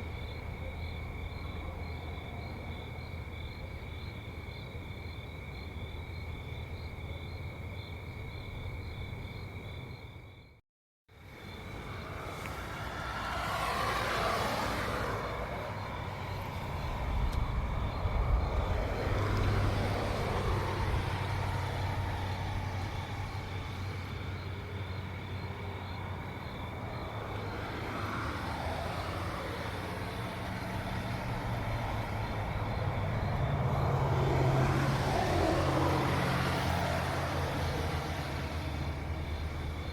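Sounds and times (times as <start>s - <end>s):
cars passing by: 0.0s - 10.3s, 11.1s - 39.9s
crickets chirping: 0.0s - 39.9s
low engine rumble: 11.6s - 39.9s.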